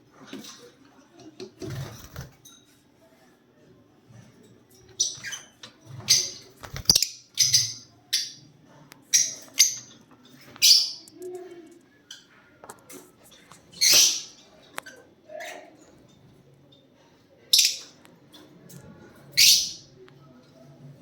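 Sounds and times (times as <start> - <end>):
lovebirds chirping: 4.9 - 8.5, 17.5 - 18.0.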